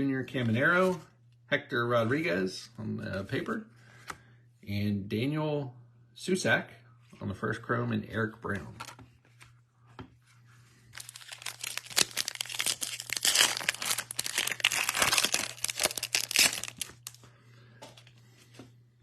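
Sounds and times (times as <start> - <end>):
wrapper tearing and crinkling: 10.9 - 17.2.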